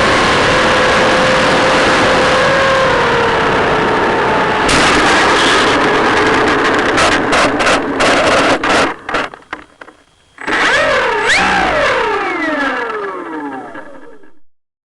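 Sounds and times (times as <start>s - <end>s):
model airplane engine crackling: 4.7s - 14.2s
model airplane engine pitch wobbling: 4.7s - 14.4s.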